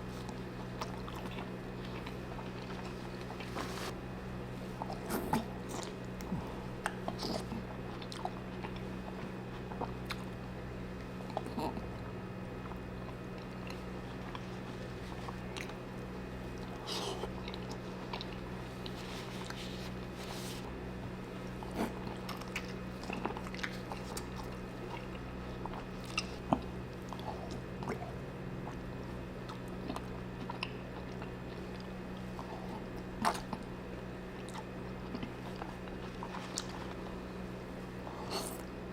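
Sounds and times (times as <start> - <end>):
low electrical hum: 0.0 - 38.9
chewing and mouth smacks: 4.8 - 10.3, 12.6 - 15.9, 16.5 - 20.0, 21.4 - 33.8, 34.4 - 37.2.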